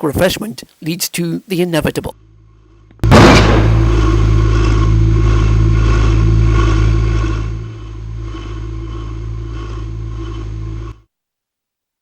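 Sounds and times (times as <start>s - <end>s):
loud mechanical drone: 3.0s - 11.0s.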